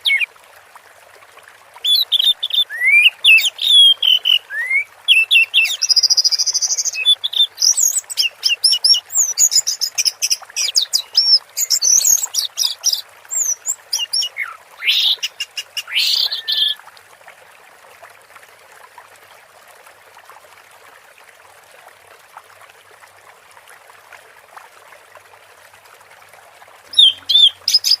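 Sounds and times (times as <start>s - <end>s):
faint running water hiss: 0.0s - 28.0s
thrush singing whistles and trills: 1.8s - 16.8s, 26.9s - 28.0s.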